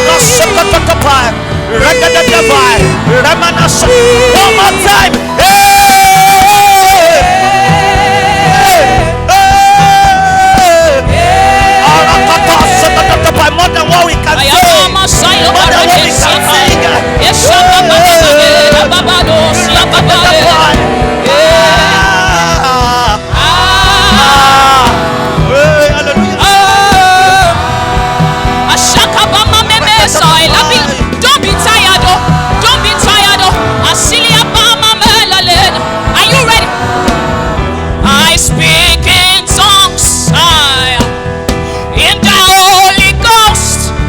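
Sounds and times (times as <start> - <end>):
church choir singing: 0.0 - 39.5
band with drum beats: 0.0 - 44.0
instrumental accompaniment: 0.0 - 44.0.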